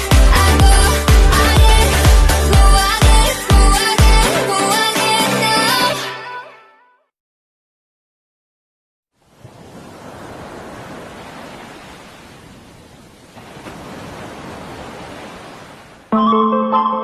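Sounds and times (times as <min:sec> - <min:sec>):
music with guitar: 0:00.0 - 0:06.5.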